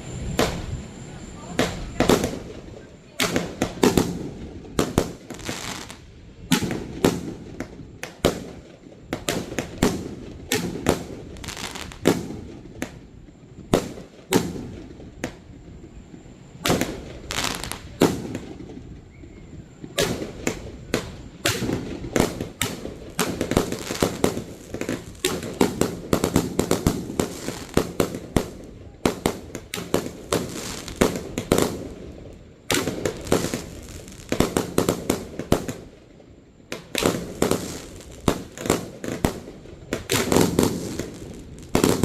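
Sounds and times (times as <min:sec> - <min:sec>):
fireworks launching and bursting: 0:00.0 - 0:00.8, 0:19.9 - 0:35.9, 0:36.7 - 0:42.0.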